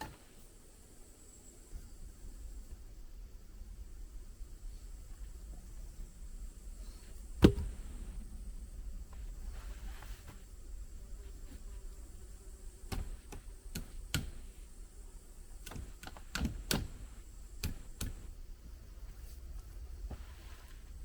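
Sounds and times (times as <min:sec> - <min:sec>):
low steady rumble: 0:02.0 - 0:12.8.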